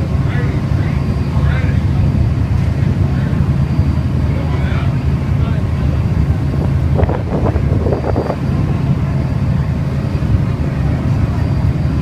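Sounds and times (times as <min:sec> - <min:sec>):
wind buffeting microphone: 0:05.1 - 0:11.0.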